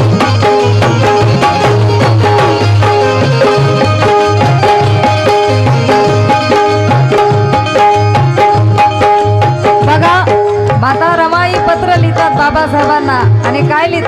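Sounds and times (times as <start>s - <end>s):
hand drums quick beat: 0.0s - 14.0s
held melody line: 0.0s - 14.0s.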